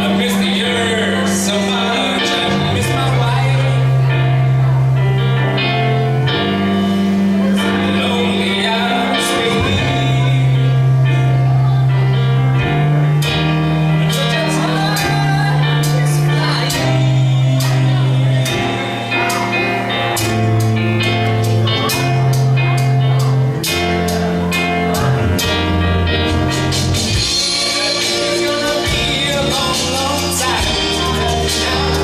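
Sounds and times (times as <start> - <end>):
person singing: 0.0 - 4.8, 7.1 - 12.2, 14.0 - 32.0
live band playing: 0.0 - 32.0.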